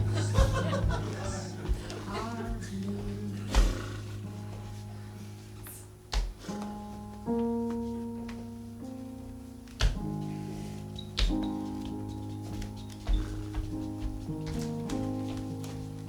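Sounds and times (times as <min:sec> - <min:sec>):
dull thumps: 0:00.0 - 0:04.2, 0:06.1 - 0:08.5, 0:09.7 - 0:10.2, 0:10.9 - 0:16.0
keyboard playing slow chords: 0:00.0 - 0:16.0.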